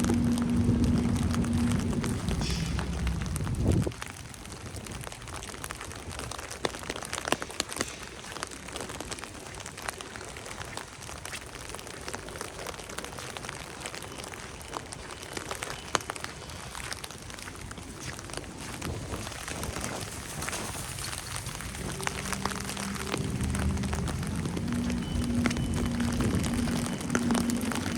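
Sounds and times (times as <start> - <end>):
low vehicle rumble: 0.0 - 4.6, 20.2 - 27.9
falling wet snow and rain: 0.0 - 27.9.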